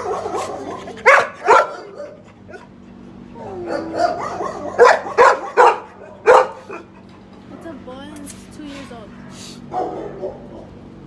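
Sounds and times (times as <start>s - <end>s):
dogs barking: 0.0s - 7.3s, 9.6s - 10.9s.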